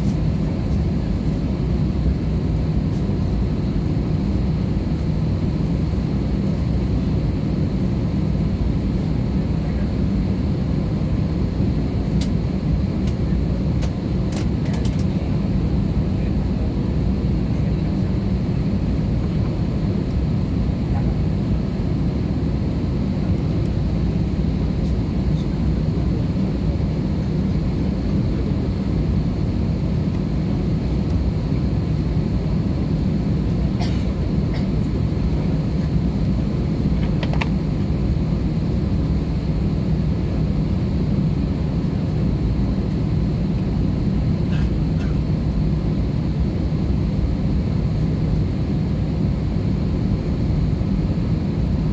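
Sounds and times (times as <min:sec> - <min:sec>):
airplane cabin drone: 0:00.0 - 0:51.9.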